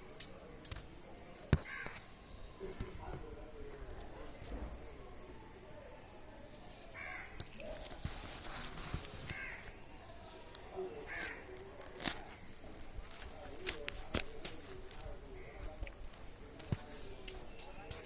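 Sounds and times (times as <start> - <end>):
crow cawing: 1.6 - 2.0, 7.0 - 7.4, 9.3 - 9.8, 11.1 - 11.6.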